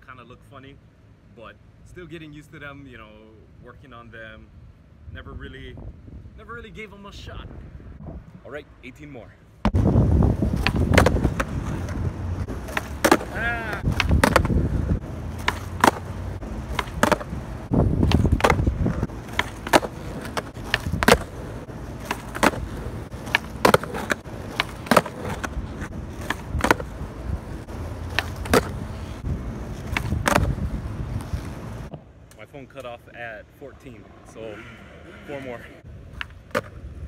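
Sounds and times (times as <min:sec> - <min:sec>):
skateboard wheels rumbling on asphalt: 0:09.6 - 0:32.9, 0:33.8 - 0:37.0
skateboard pops and landings: 0:10.5 - 0:14.8, 0:15.4 - 0:17.4, 0:18.0 - 0:27.0, 0:28.1 - 0:32.1, 0:36.1 - 0:36.8.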